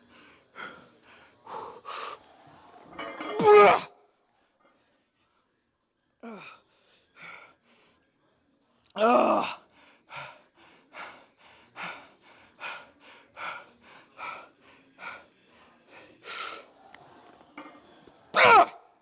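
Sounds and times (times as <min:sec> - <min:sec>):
man grunting: 0:03.3 - 0:03.9, 0:18.4 - 0:18.8.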